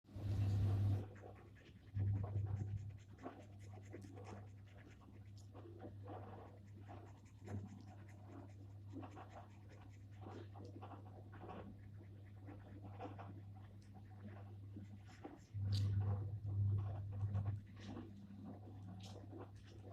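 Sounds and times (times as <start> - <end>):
steady low hum: 0.1 - 19.9
pen scratching on paper: 0.6 - 19.9
low rumble: 15.6 - 17.7.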